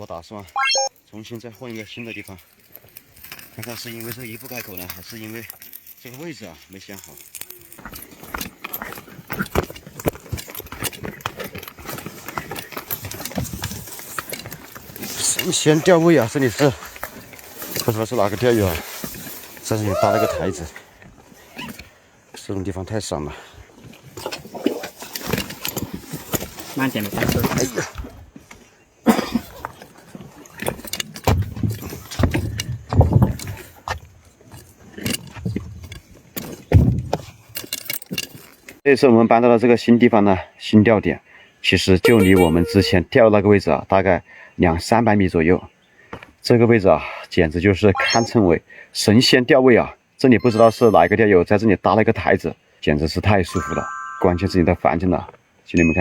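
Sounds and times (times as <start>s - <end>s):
fishing gear rattling: 2.6s - 20.6s, 23.8s - 27.8s, 29.4s - 32.7s, 34.4s - 38.8s
gear rattling: 37.3s - 38.8s.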